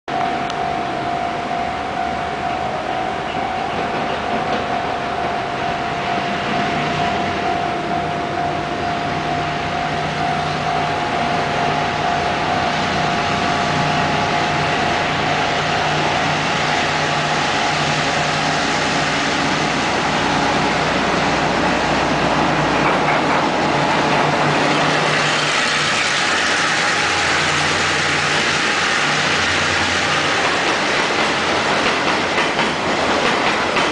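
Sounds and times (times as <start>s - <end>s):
steady high tone: 0.1s - 22.7s
diesel locomotive engine: 0.1s - 33.9s.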